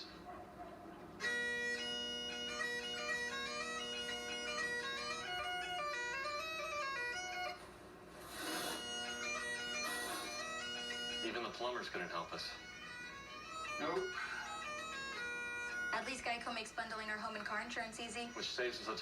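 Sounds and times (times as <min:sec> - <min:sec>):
bagpipes playing a tune: 0:01.2 - 0:18.9
short hiss: 0:08.2 - 0:08.8.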